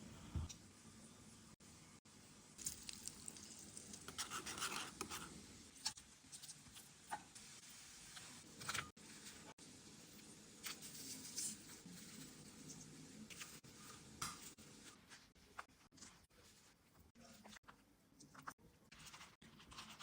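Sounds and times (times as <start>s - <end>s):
utensils scraping and rustling food: 2.6s - 17.6s, 18.2s - 20.0s.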